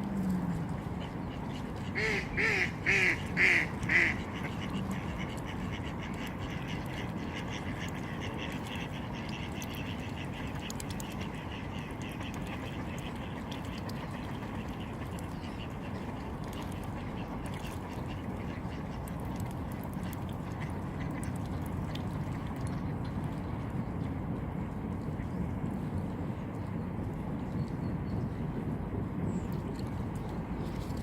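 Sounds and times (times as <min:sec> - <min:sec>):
ducks quacking: 0:00.8 - 0:13.9.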